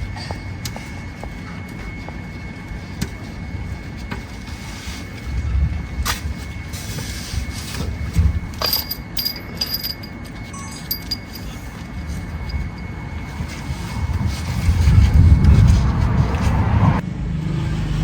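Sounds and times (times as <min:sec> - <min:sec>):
short high ringing tones: 0:08.7 - 0:13.7
car engine rumbling: 0:11.0 - 0:17.0.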